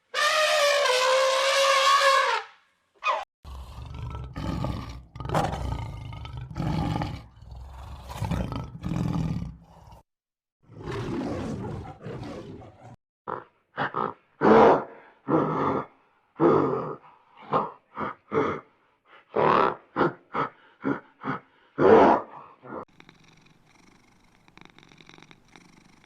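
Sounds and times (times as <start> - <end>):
big cat roaring: 3.5 - 10.1, 10.7 - 13.0.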